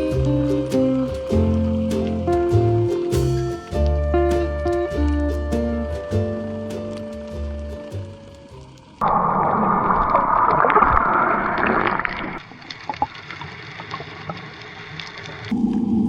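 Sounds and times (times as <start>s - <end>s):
quiet water ambience: 8.0s - 16.0s
rush of water bubbles: 9.0s - 14.5s.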